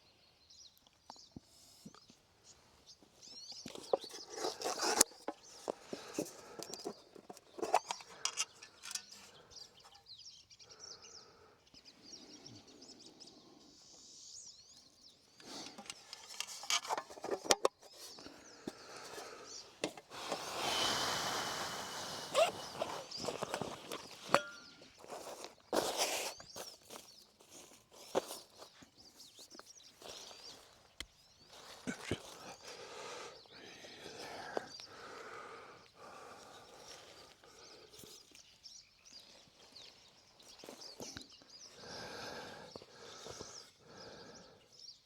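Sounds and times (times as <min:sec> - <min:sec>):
faint bird chirps: 0:00.0 - 0:19.8, 0:22.3 - 0:45.0
rustling: 0:19.0 - 0:32.5.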